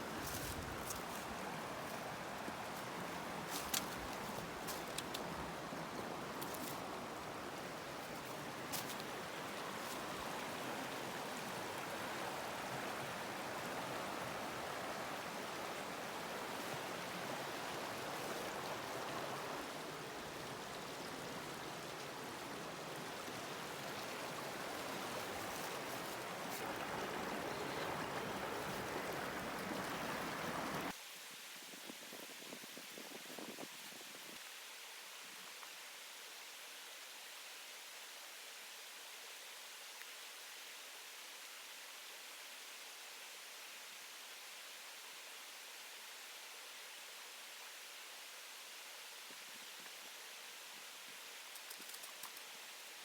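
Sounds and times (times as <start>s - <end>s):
stream flowing over rocks: 0.0s - 31.0s
faint clicks: 51.5s - 53.0s.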